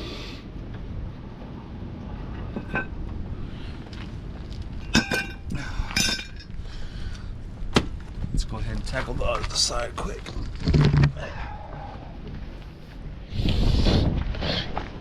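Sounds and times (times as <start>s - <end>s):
metal tools clinking: 2.6s - 2.9s, 4.8s - 6.5s.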